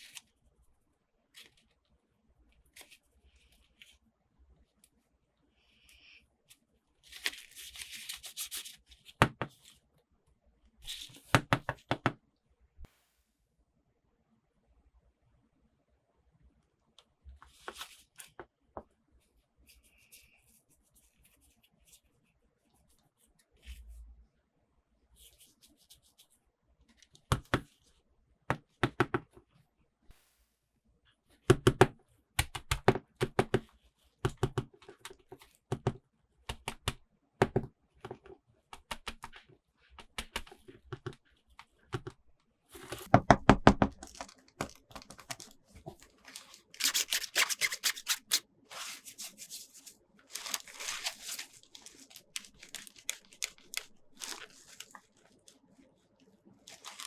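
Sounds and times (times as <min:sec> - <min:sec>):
packaging tearing and crinkling: 0:44.0 - 0:55.2, 0:56.7 - 0:57.0.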